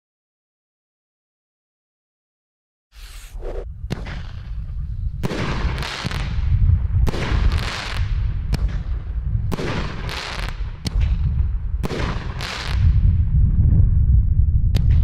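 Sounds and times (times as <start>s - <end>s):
steady low rumble: 3.0s - 7.4s
firework bangs with hiss: 3.0s - 13.0s.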